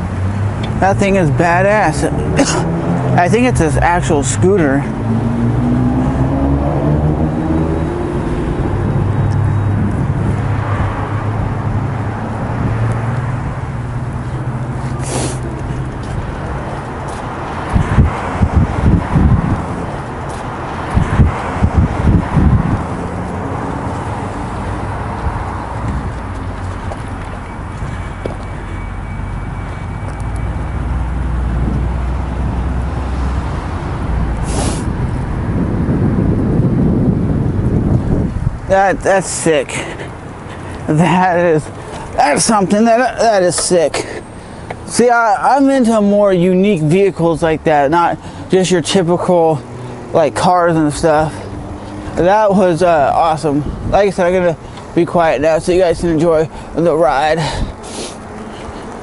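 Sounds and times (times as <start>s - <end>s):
road noise: 0.0s - 59.0s
wind on microphone: 15.4s - 20.1s, 20.7s - 28.2s, 31.5s - 38.8s
short rushing burst: 34.4s - 35.0s.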